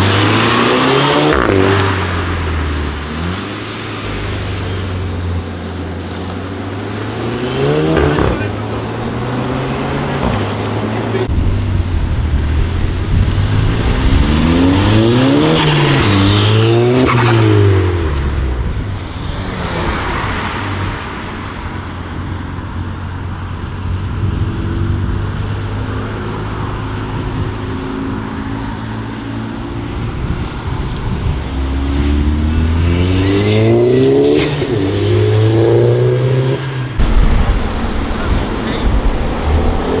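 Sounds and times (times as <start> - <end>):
car engine revving hard: 0.0 - 3.4, 7.1 - 11.3, 13.1 - 18.2, 19.0 - 21.6, 31.5 - 40.0.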